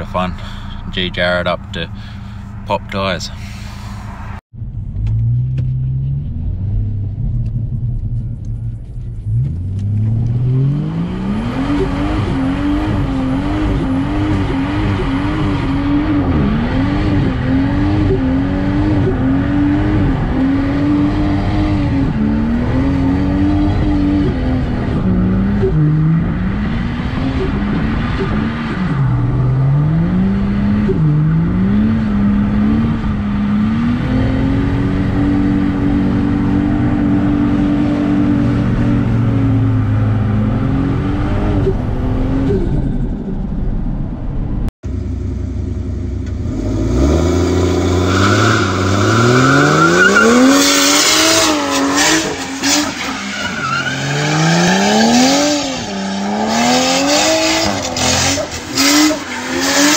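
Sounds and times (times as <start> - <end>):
car engine droning from inside: 35.2 - 48.0
engine revving hard: 46.4 - 59.9
tyre squeal: 48.0 - 56.8.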